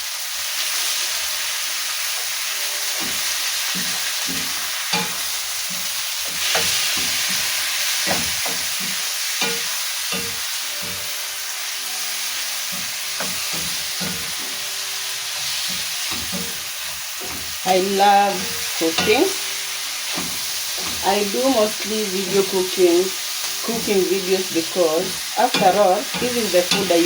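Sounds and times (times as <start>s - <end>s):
vegetables sizzling in hot oil: 0.0s - 27.0s
spoon scraping pan: 2.8s - 11.4s, 12.0s - 22.8s.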